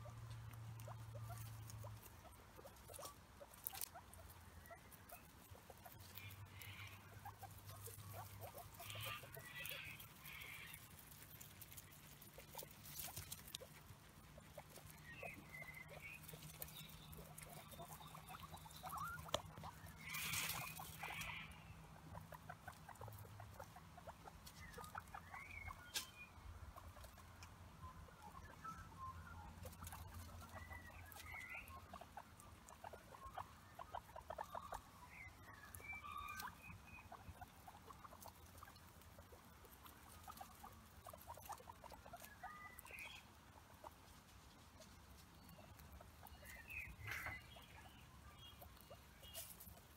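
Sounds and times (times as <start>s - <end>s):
guinea pig squeaks: 0.0s - 49.9s
guinea pigs chewing grass: 0.0s - 49.9s
rustling in dry leaves: 0.3s - 21.6s.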